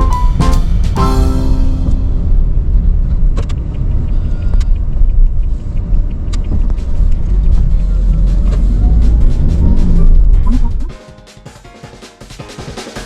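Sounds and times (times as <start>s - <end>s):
car road and engine rumble: 2.3s - 10.9s.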